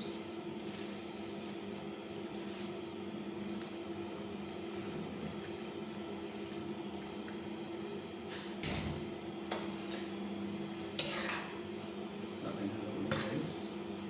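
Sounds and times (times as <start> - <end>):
metal utensils clattering on a pan: 11.0 - 11.5.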